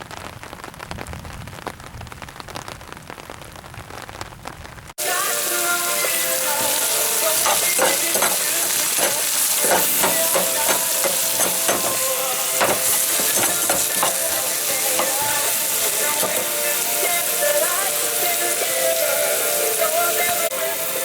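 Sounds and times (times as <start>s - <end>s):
meat sizzling in a pan: 5.0s - 21.0s
utensil scraping a pan: 6.0s - 17.1s.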